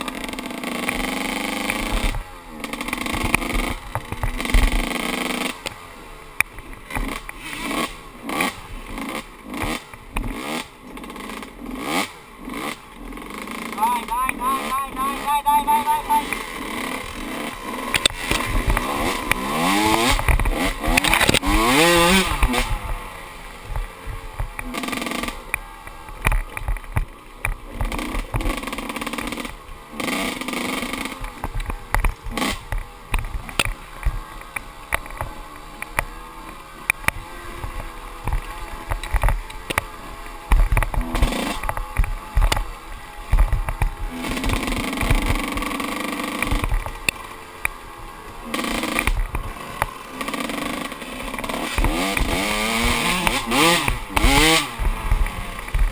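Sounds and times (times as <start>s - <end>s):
dirt bike engine revving: 0.0s - 55.9s
sharp knocks and rattles: 36.8s - 47.7s.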